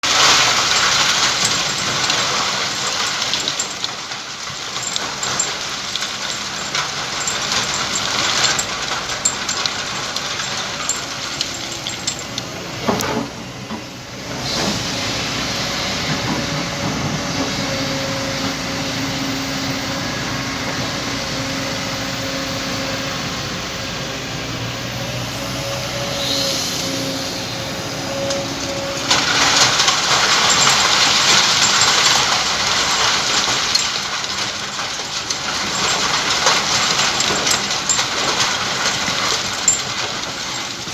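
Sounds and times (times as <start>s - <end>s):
heavy engine humming: 0.0s - 40.9s
hot sand hissing with steam: 25.9s - 29.1s.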